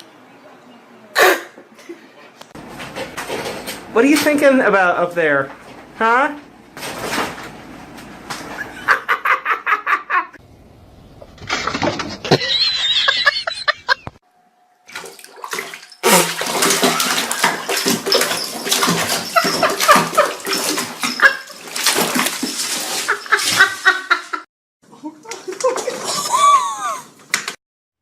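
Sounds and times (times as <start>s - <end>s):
water running and splashing: 14.9s - 23.7s.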